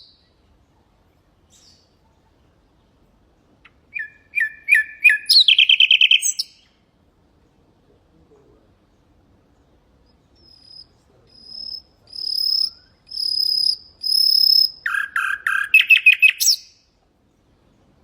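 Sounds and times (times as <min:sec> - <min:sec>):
nightingale singing: 0:00.0 - 0:00.4, 0:01.4 - 0:02.2, 0:03.6 - 0:06.8, 0:08.8 - 0:17.9.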